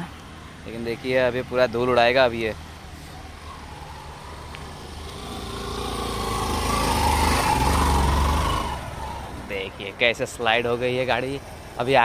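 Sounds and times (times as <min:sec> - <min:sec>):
motorcycle engine revving: 0:03.5 - 0:09.5.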